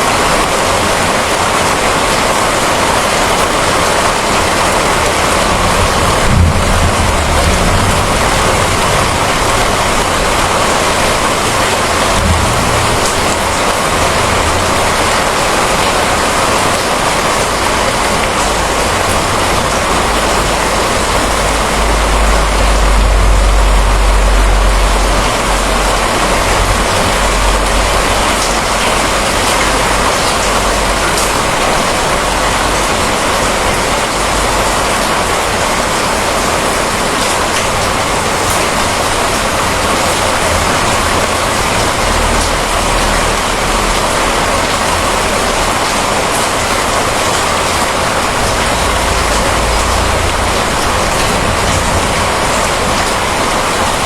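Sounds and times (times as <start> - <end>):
heavy rain: 0.0 - 54.0
low rumble of thunder: 4.4 - 35.9, 48.1 - 54.0.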